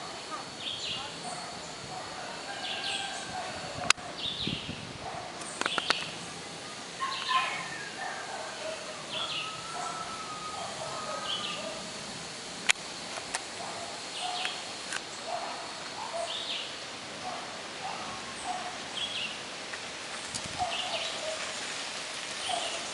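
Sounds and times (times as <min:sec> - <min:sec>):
birds chirping and whistling: 0:04.2 - 0:06.2, 0:07.0 - 0:11.8, 0:14.1 - 0:16.8, 0:20.6 - 0:21.6, 0:22.4 - 0:22.9
sharp clicks: 0:05.4 - 0:06.2.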